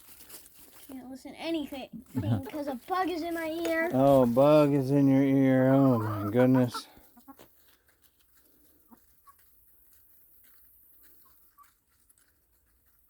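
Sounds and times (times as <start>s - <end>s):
chickens clucking softly: 5.1s - 7.6s, 8.7s - 11.9s
chickens pecking crunchy rind: 5.8s - 13.0s.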